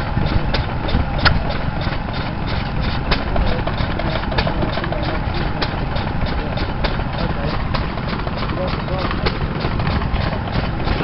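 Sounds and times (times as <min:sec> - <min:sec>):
sharp engine crack: 0:00.0 - 0:11.0
stationary engines chugging: 0:00.0 - 0:11.0.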